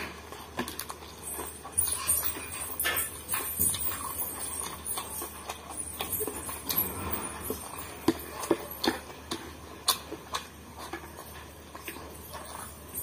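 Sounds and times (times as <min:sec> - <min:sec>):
wet chewing: 0:00.0 - 0:13.0.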